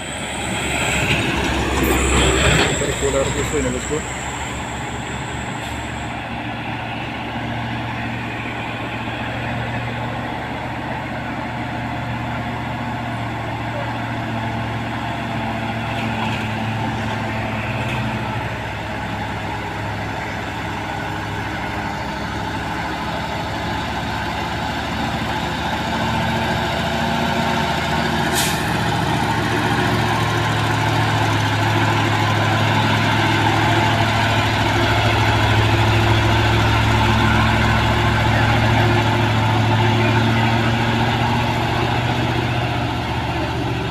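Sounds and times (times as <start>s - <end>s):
heavy diesel truck engines labouring: 0.0s - 43.9s
brief sharp hiss: 28.3s - 28.7s.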